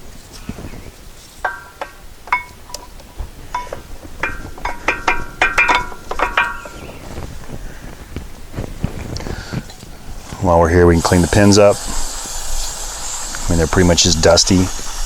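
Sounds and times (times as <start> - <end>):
metal clinking against metal: 1.4 - 7.0.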